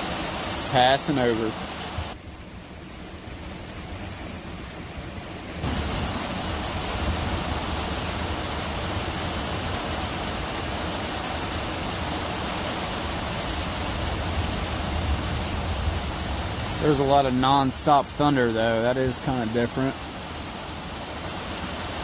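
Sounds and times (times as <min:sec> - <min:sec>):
heavy rain on a tin roof: 0:00.0 - 0:22.0
low rumble of thunder: 0:13.8 - 0:18.2.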